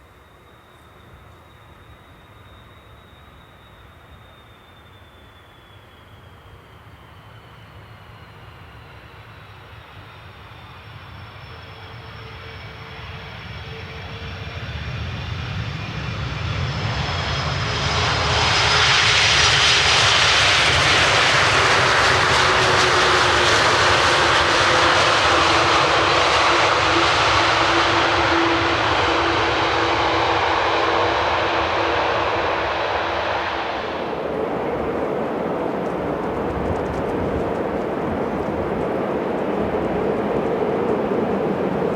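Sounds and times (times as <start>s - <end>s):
jet engines roaring: 1.0s - 41.9s.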